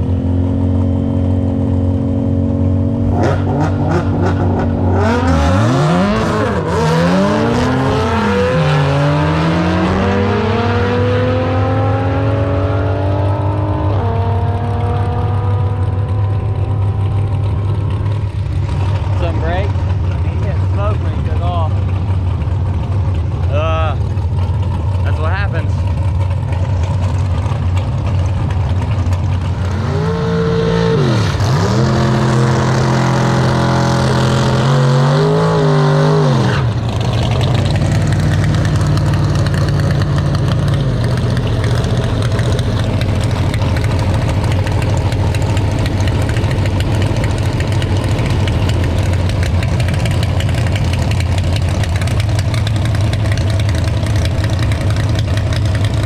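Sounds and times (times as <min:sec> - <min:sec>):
car engine revving: 0:00.0 - 0:56.0
car engines idling: 0:13.3 - 0:35.9, 0:36.6 - 0:56.0.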